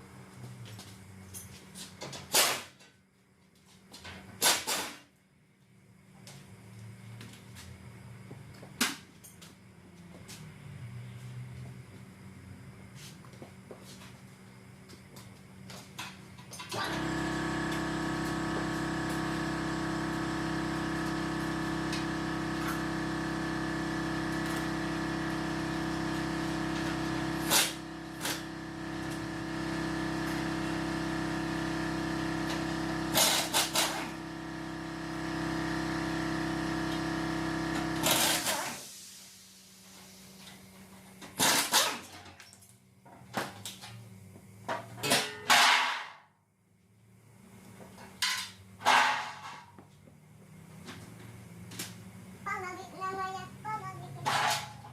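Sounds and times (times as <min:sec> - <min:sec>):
machine motor humming: 0:16.8 - 0:38.6.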